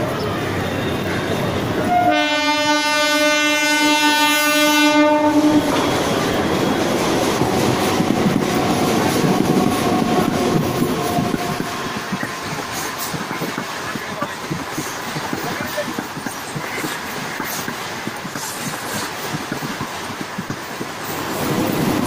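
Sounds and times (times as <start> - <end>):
train horn blast: 1.8 - 5.9
train wheels clattering past: 5.0 - 22.0.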